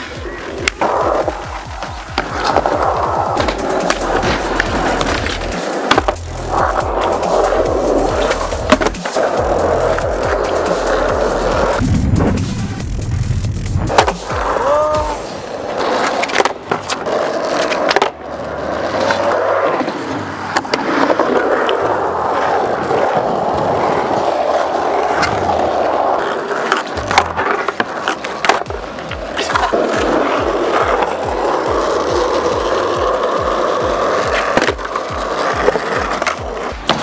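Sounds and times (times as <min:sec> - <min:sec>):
skateboard clacks: 0:00.0 - 0:11.8, 0:13.9 - 0:37.0
background music with bass beat: 0:00.0 - 0:16.4, 0:26.8 - 0:37.0
skateboard wheels rolling: 0:00.0 - 0:37.0.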